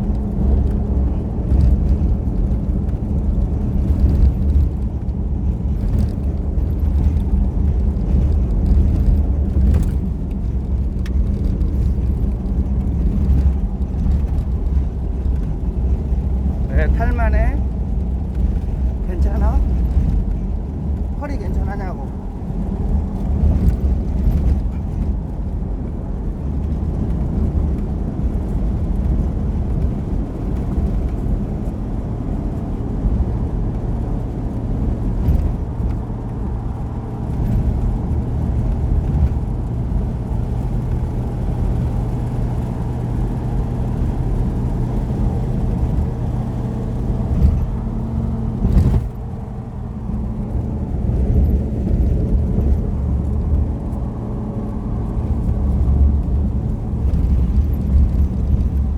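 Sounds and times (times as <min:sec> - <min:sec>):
road noise: 0:00.0 - 0:58.9
vehicle engine running: 0:00.0 - 0:58.9.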